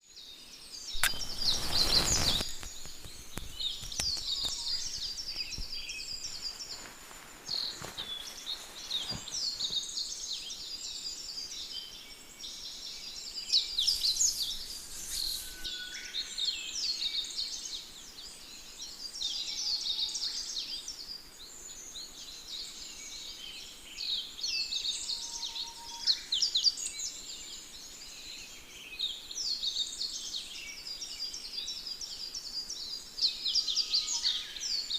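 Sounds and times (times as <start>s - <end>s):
birds chirping: 0.8s - 20.4s.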